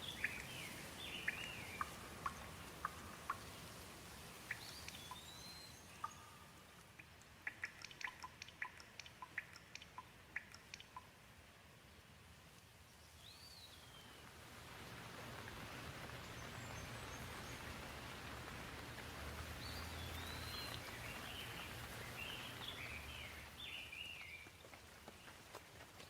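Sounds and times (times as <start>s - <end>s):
bird chirping: 0.0s - 11.2s, 12.9s - 14.2s, 19.6s - 25.3s
gentle rain hiss: 0.0s - 26.0s.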